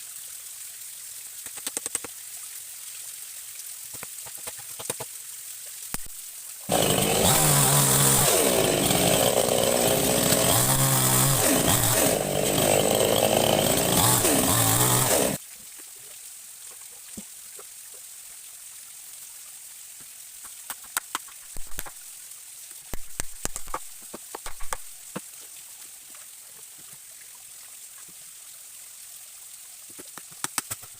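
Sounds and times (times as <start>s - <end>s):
stream running: 0.0s - 30.9s
sharp clicks and knocks: 3.9s - 5.1s, 23.0s - 25.3s
chainsaw cutting: 6.7s - 15.4s.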